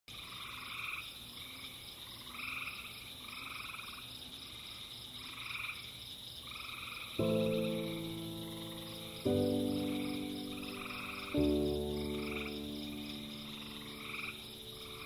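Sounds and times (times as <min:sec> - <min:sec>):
frogs croaking: 0:00.1 - 0:15.0
high-pitched insect trill: 0:07.2 - 0:15.0.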